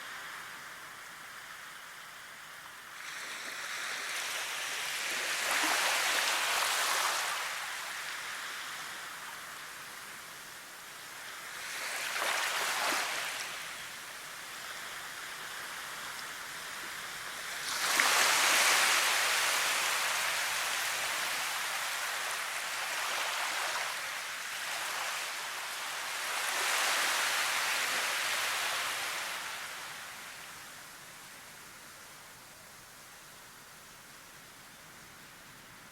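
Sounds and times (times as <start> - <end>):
rushing water: 17.1 - 30.3.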